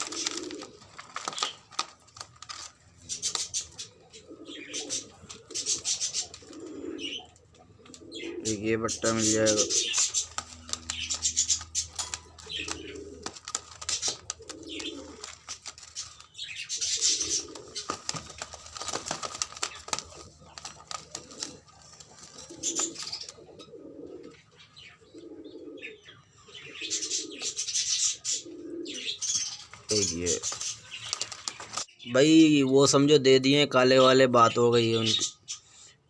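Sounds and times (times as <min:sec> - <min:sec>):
pigeons cooing: 0:00.0 - 0:32.0
high rustling or squeaking: 0:08.8 - 0:23.4.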